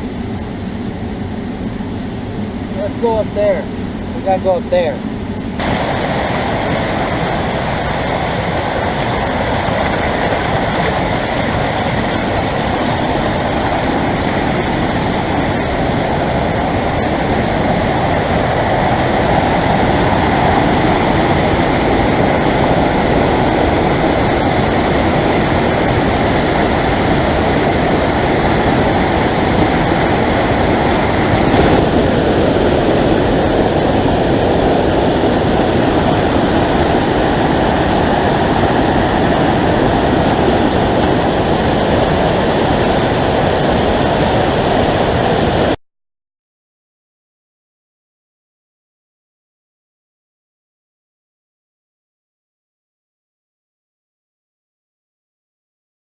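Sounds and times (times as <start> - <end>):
water rushing over rocks: 2.6 - 45.8.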